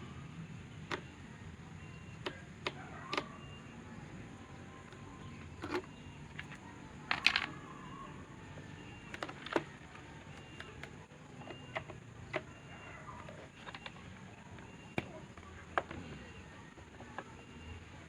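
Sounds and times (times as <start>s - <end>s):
tools clicking and knocking: 4.9s - 7.7s.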